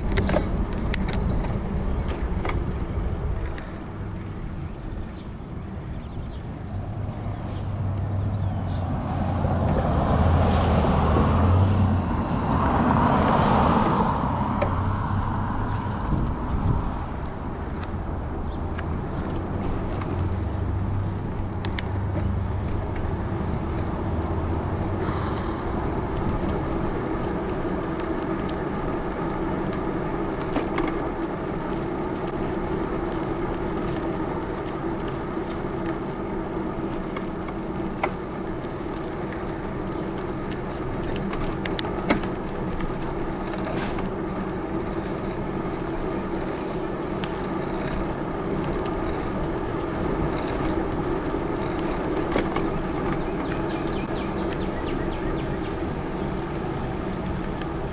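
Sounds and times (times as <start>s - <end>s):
bike tires humming: 0.0s - 57.9s.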